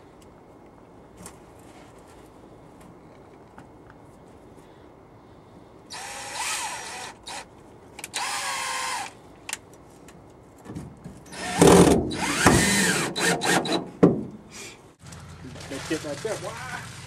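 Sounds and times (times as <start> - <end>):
power drill whining: 5.9 - 7.5, 8.1 - 9.2, 11.3 - 13.8.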